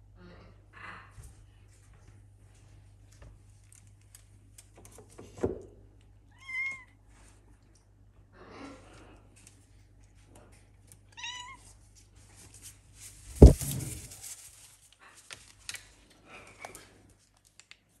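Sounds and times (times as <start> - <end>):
loud thump: 13.4 - 14.1.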